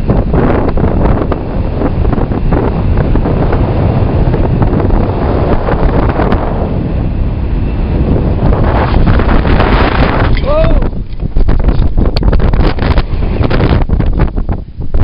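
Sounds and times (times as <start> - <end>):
jet engine blast: 0.0 - 15.0
wind noise on microphone: 0.0 - 15.0.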